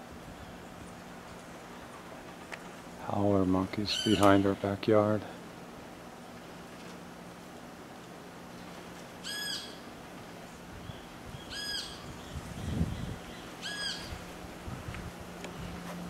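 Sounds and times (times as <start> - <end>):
steady low hum: 0.0 - 16.0
bird calling: 3.8 - 4.7, 9.2 - 9.9, 10.8 - 14.3.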